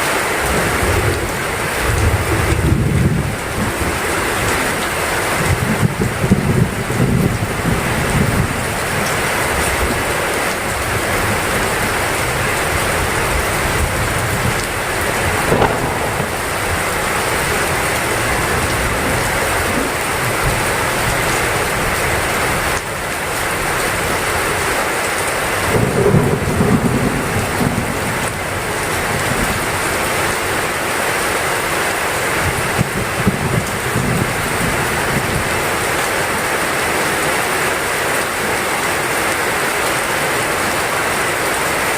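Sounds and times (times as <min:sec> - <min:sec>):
heavy rain pouring: 0:00.0 - 0:41.9
thunder rumbling: 0:10.7 - 0:22.0, 0:25.6 - 0:29.7.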